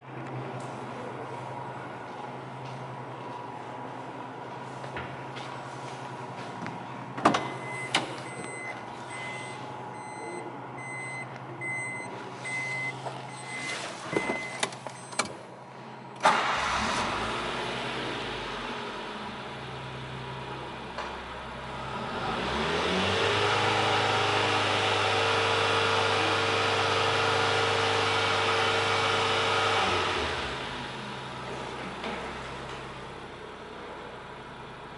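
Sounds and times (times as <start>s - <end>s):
car warning chime beeping: 7.4s - 15.3s
car engine starting and revving: 16.2s - 34.9s.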